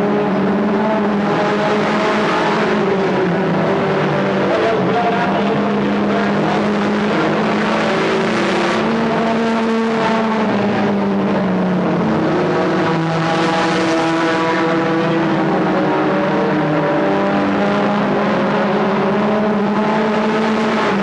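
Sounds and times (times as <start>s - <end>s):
stock car engines racing: 0.0s - 21.0s.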